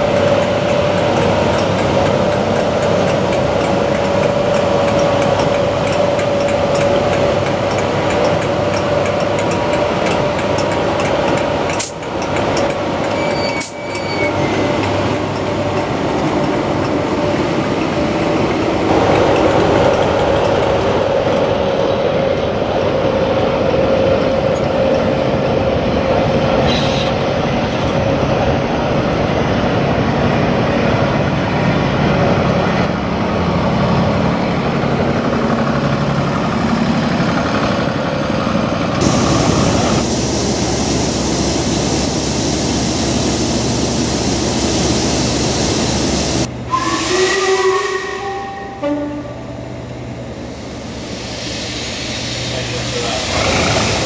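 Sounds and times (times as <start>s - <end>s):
wheel-on-rail noise: 0.0s - 46.8s
locomotive whine: 0.0s - 54.0s.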